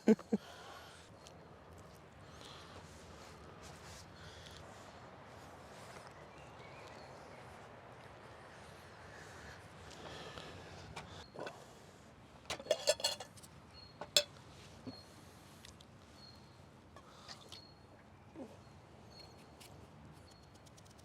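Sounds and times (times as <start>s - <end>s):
cooking gear knocks and clinks: 12.5s - 14.3s.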